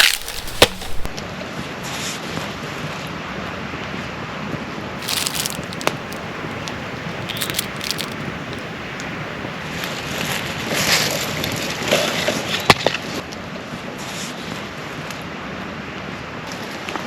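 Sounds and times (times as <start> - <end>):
campfire crackling: 0.0 - 1.2, 5.0 - 9.6
fire popping and snapping: 0.0 - 1.2, 5.0 - 9.2.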